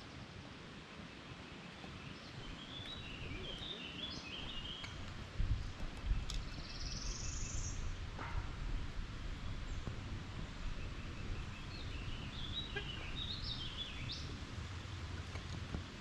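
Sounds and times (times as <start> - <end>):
birds singing: 1.1 - 16.0
low rumbling: 4.3 - 16.0.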